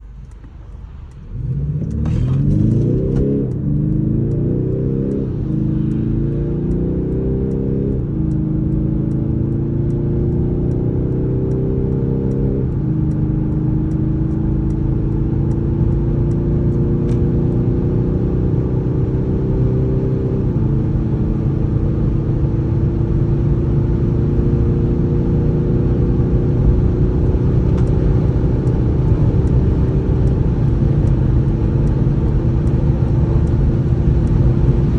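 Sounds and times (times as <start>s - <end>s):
diesel engine accelerating: 0.0s - 34.9s
road and wind noise: 0.0s - 34.9s.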